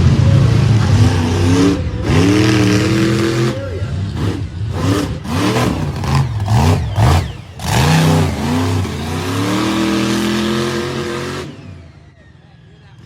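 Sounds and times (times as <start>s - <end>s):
monster truck engine revving: 0.0s - 13.0s.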